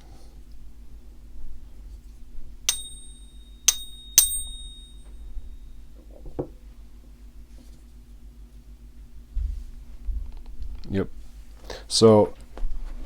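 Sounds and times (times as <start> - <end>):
coin tapped with bell-like ping: 2.7 - 5.6.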